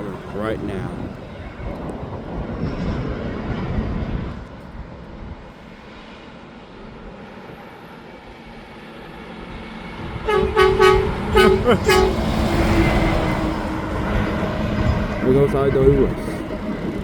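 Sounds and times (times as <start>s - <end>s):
truck horn short toots: 10.3s - 12.3s
garbage truck diesel engine: 10.3s - 17.0s.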